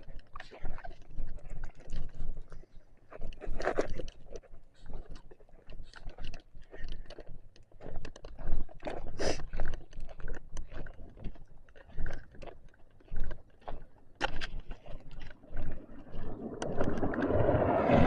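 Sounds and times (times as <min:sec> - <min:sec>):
low wind rumble: 0:15.8 - 0:18.0.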